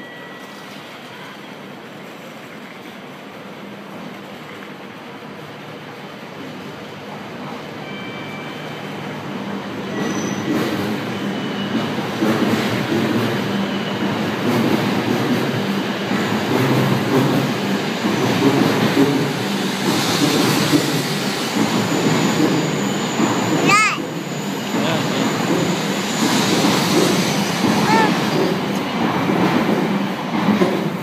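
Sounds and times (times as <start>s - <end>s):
train wheels rumbling: 8.7s - 31.0s
high wheel squeals: 9.8s - 12.1s.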